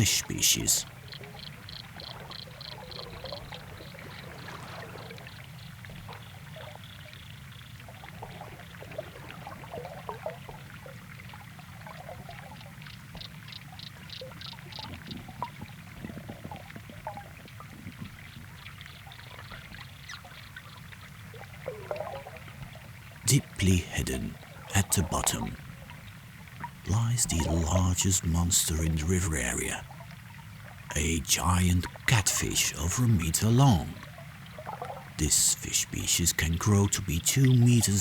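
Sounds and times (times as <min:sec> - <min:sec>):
water gurgling and trickling: 0:07.9 - 0:38.0.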